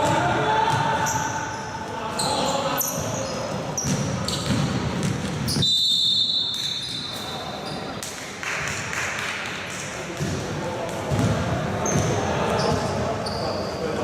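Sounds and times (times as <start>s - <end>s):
players' voices: 0.0s - 5.6s, 9.7s - 14.0s
basketball bouncing on court: 3.7s - 5.6s, 10.1s - 13.0s.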